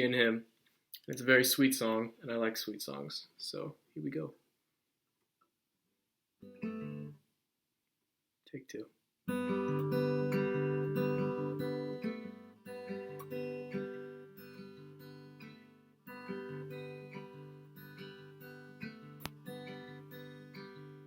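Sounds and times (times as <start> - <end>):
acoustic guitar strumming: 6.4 - 7.2, 9.3 - 21.0.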